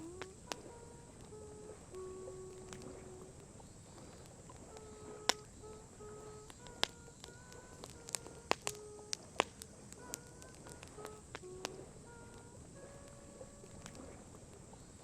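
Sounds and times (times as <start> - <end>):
campfire crackling: 0.0 - 15.0
faint held notes: 0.0 - 15.0
sharp fire pops: 6.4 - 11.8.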